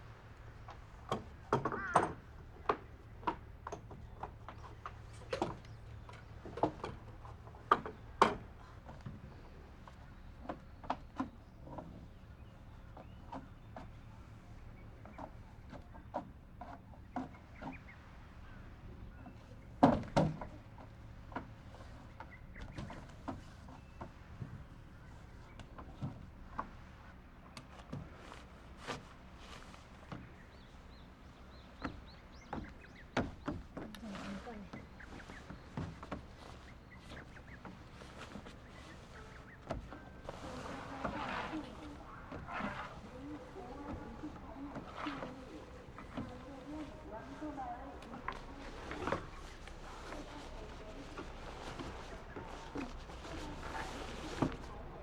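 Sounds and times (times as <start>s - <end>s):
footsteps outdoors: 0.1s - 19.9s, 20.5s - 55.0s.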